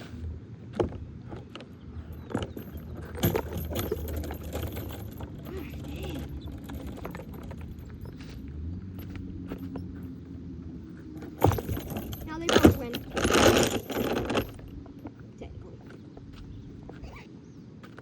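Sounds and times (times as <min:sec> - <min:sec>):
swing chains clinking: 0:01.3 - 0:15.2.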